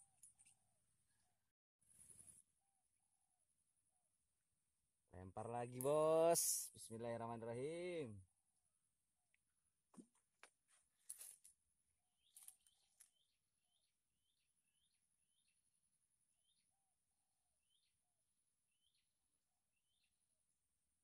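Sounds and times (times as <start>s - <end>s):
faint bird chirps: 12.2s - 15.6s.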